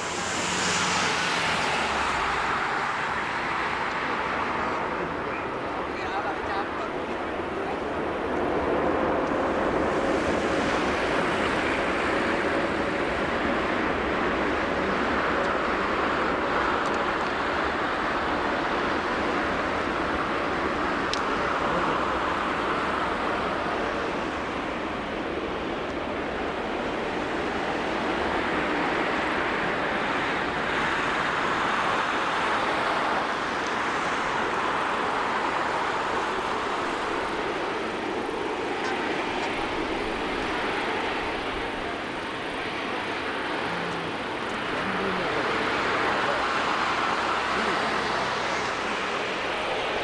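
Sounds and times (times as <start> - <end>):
distant jet engines roaring: 0.0 - 50.0.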